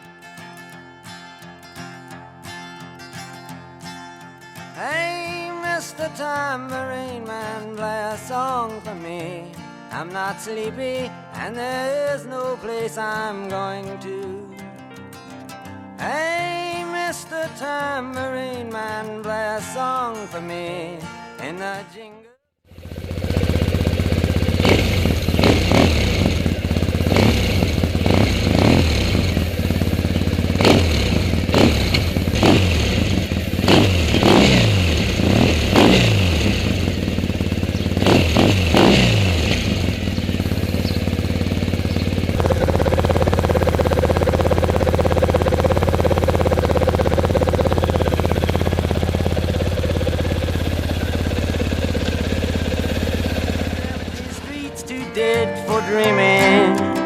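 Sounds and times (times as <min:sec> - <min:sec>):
motorcycle engine revving and idling: 0:22.7 - 0:54.7.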